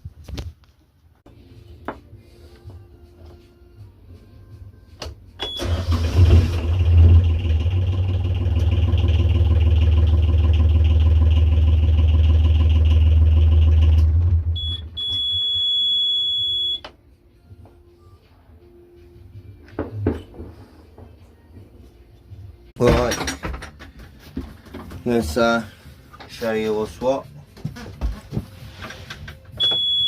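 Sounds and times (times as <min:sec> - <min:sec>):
boat engine starting and running: 0:05.6 - 0:14.8
brief high beep: 0:14.6 - 0:16.8, 0:29.6 - 0:30.0.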